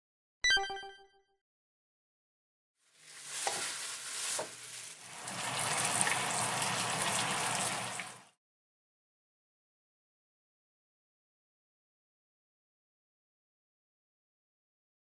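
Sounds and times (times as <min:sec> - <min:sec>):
chicken sizzling in oil: 0:02.8 - 0:08.4.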